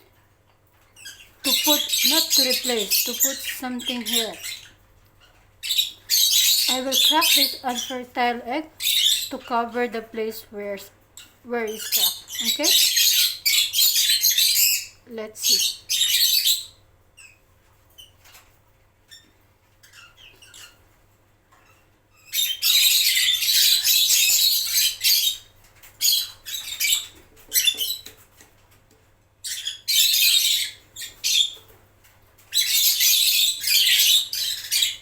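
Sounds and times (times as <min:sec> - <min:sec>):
lovebirds squawking: 0:01.0 - 0:16.7.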